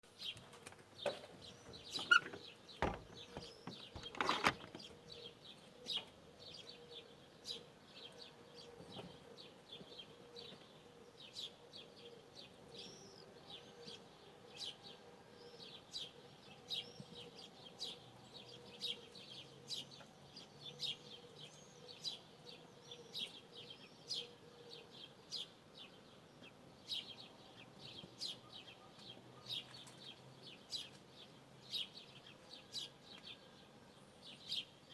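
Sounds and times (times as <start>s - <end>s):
small birds chirping: 0.1s - 14.8s.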